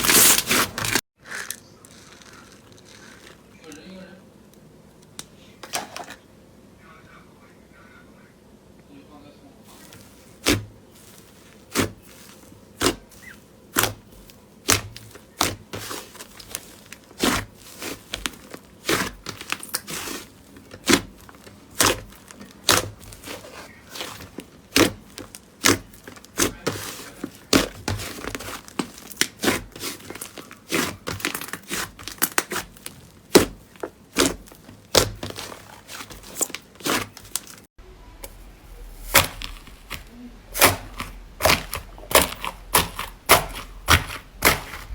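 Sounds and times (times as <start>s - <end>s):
slime popping and crackling: 11.7s - 37.6s, 38.2s - 44.9s.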